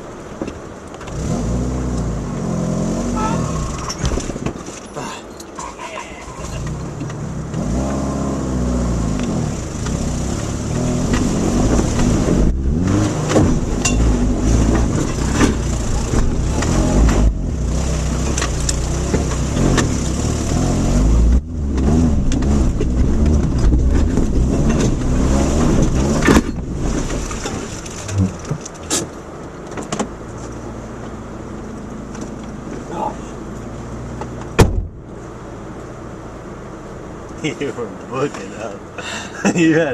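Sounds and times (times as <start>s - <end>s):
car knocking and rattling: 0.0s - 1.2s, 3.3s - 8.0s, 9.0s - 39.9s
car engine revving: 1.0s - 4.6s, 6.2s - 29.2s.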